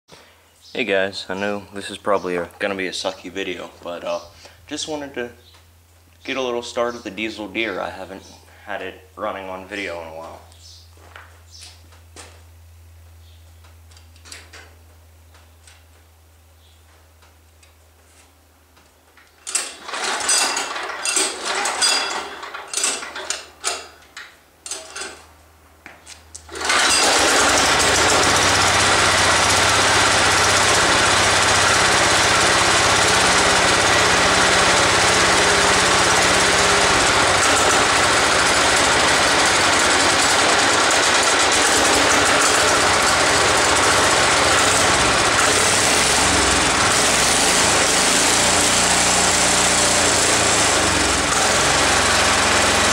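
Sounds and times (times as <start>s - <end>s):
diesel engine cranking and starting: 19.5s - 23.9s, 26.4s - 52.9s.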